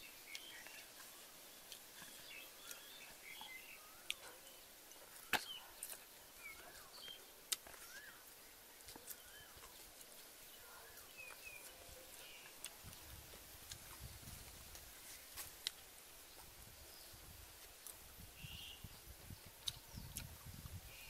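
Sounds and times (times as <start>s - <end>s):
bird whistling in forest: 7.8s - 8.2s.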